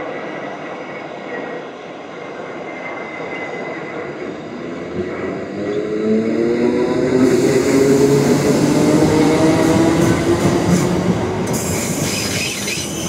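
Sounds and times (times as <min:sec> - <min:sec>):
train rumble passing: 0:00.0 - 0:13.0.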